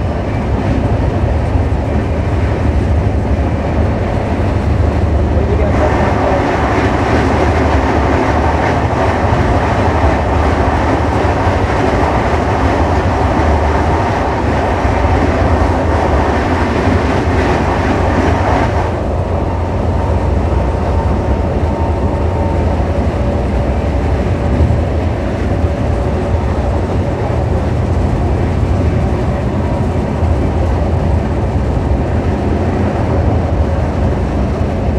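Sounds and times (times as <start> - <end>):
freight train wagons rushing past: 0.0 - 34.9
train wheels running on rails: 0.0 - 34.9.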